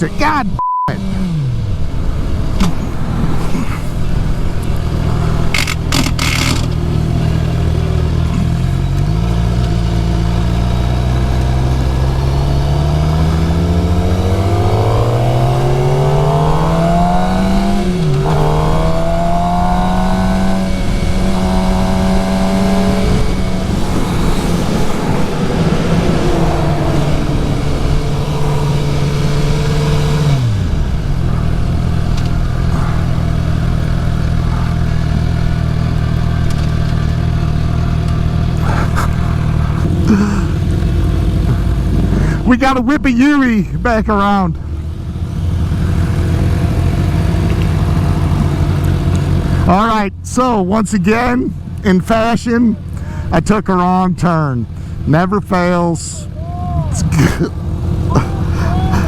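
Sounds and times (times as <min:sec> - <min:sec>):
motorcycle engine revving: 0:00.0 - 0:52.0, 0:56.1 - 0:59.0
sharp clicks: 0:05.5 - 0:06.8.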